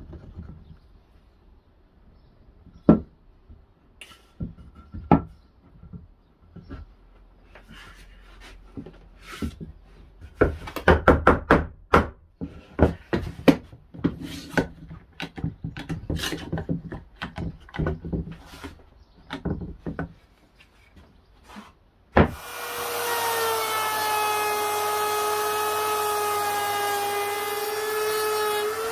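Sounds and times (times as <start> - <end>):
wood scraping strokes: 20.2 - 21.8.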